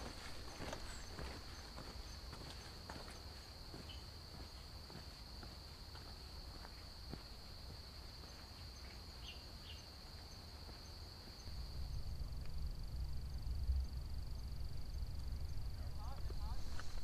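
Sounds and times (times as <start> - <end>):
insects trilling: 0.0 - 17.0
faint ticking pulse: 11.4 - 17.0.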